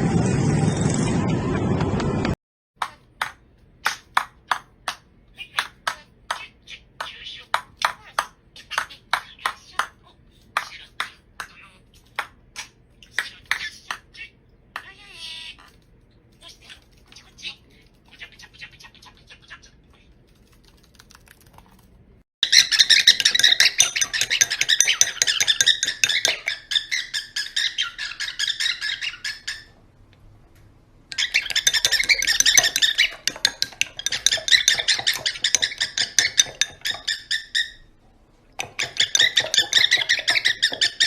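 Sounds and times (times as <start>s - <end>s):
bird chirping and squawking: 5.4s - 15.8s, 16.4s - 20.1s, 22.4s - 29.8s, 31.1s - 38.0s, 38.6s - 41.0s.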